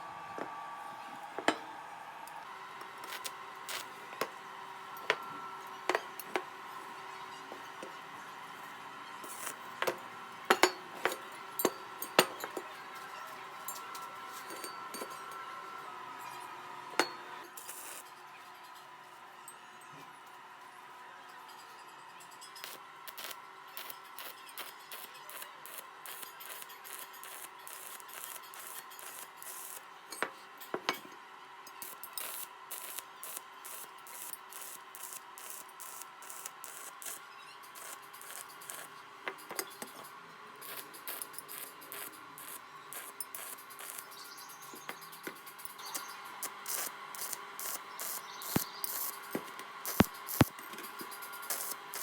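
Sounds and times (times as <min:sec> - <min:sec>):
welding arc crackling: 0:03.0 - 0:04.0, 0:09.2 - 0:09.7, 0:22.6 - 0:29.8, 0:31.8 - 0:38.9, 0:40.6 - 0:44.2, 0:45.4 - 0:52.0.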